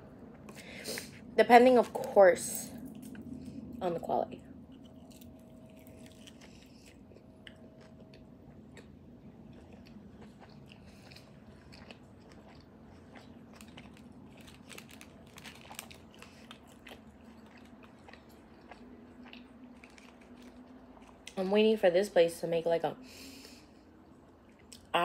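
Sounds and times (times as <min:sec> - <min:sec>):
crisp crunching: 0:04.7 - 0:08.9, 0:09.5 - 0:21.4
wet chewing clicks: 0:04.7 - 0:21.4.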